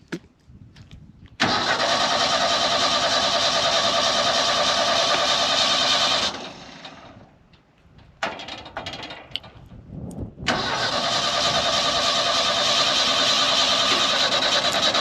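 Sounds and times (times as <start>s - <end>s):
engine running: 1.4s - 7.4s, 10.5s - 15.0s.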